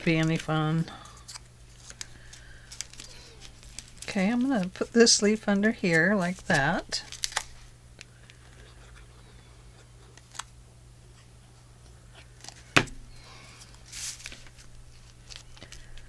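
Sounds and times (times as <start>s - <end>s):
paper rustling: 0.0s - 7.7s, 12.4s - 16.0s
faint steady hum: 0.0s - 16.0s.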